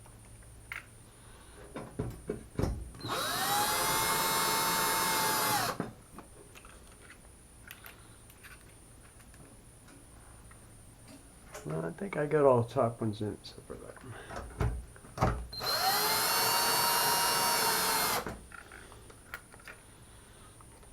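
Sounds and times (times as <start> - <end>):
drill-driver motor whining: 3.0 - 5.8, 15.6 - 18.3.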